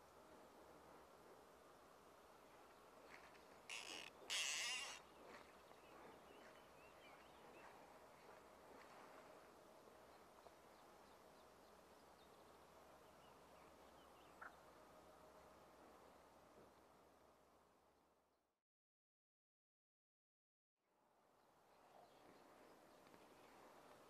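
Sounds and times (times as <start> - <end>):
faint steady hum: 0.0 - 18.4.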